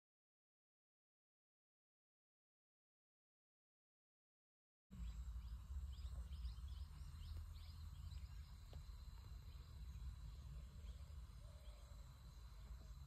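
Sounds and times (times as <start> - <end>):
birds chirping: 4.9 - 13.0.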